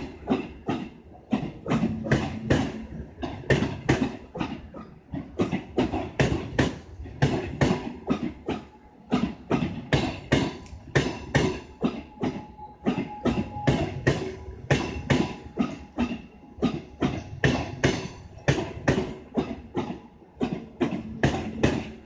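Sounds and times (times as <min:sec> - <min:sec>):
train wheels clacking over rail joints: 0:00.0 - 0:22.0.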